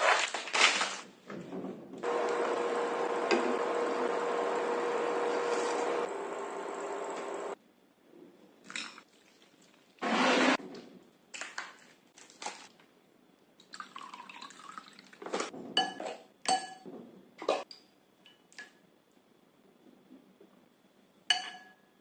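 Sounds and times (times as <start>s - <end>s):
liquid splashing and pouring: 13.6s - 15.5s.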